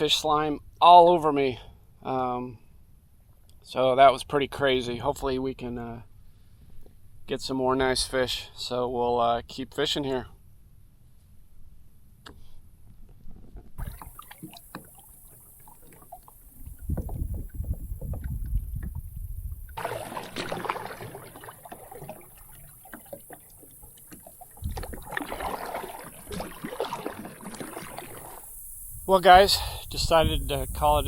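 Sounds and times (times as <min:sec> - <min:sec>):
water splashing around kayak: 0:13.8 - 0:31.0.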